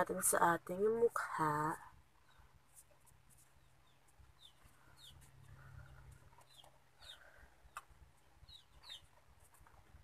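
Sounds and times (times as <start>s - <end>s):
faint high bird chirps: 3.4s - 9.2s.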